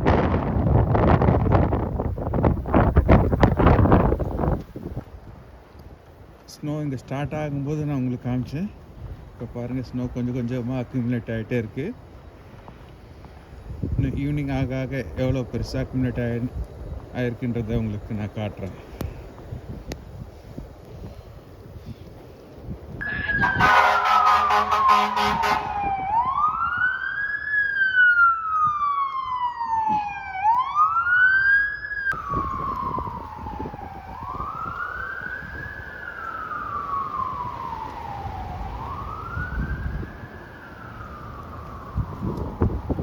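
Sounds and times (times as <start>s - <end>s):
pulsing horn blast: 23.0s - 26.5s
emergency siren wailing: 23.0s - 43.0s.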